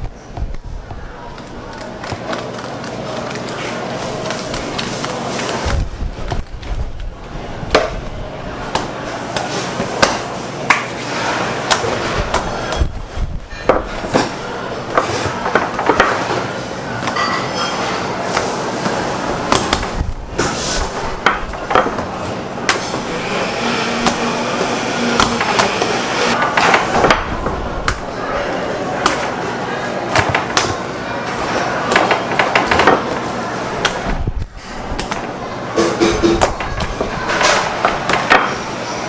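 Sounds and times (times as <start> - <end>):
steady low hum: 18.0 - 39.0
hands pounding bread dough: 18.3 - 20.5, 21.2 - 22.1, 30.1 - 30.8.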